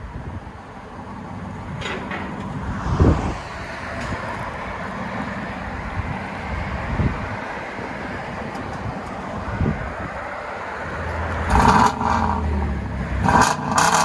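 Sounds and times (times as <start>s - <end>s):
car exhaust rumbling: 10.8s - 14.0s.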